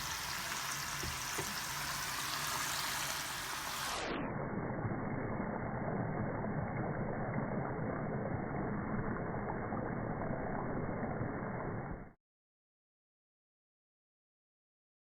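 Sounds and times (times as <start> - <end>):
vegetable chips sizzling in hot oil: 0.0 - 4.1.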